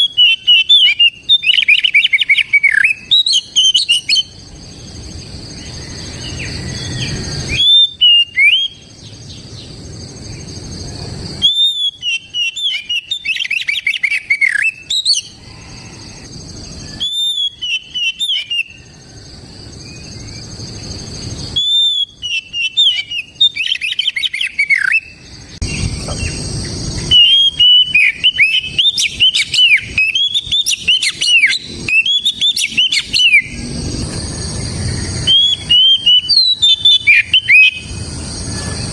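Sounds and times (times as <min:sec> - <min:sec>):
bird singing whistled trills: 0:00.0 - 0:10.8, 0:11.4 - 0:38.9
low rushing noise: 0:25.4 - 0:30.0, 0:31.3 - 0:36.9.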